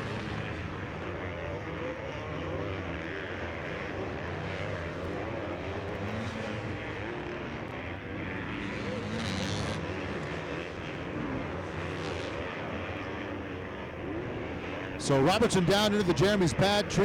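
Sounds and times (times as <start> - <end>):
motocross bikes revving: 14.9 - 17.0.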